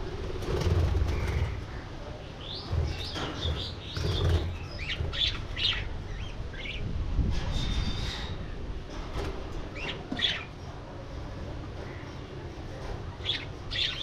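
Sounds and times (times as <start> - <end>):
budgerigars chirping: 2.4 - 6.8.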